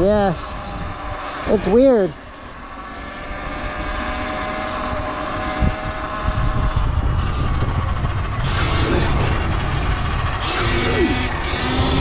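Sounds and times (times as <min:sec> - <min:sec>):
electric motor whine: 0:00.0 - 0:12.0
wind rumbling on microphone: 0:00.0 - 0:12.0.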